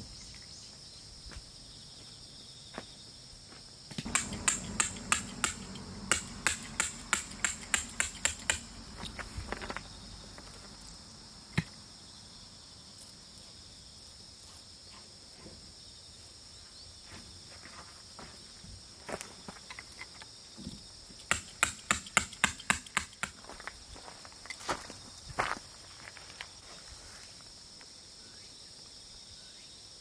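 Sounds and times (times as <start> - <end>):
insects trilling: 0.0 - 30.0
sharp knocks: 4.0 - 9.3, 21.3 - 23.4.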